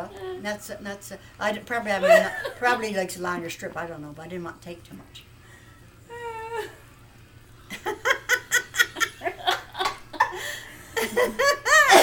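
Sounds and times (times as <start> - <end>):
person laughing: 7.8 - 12.0.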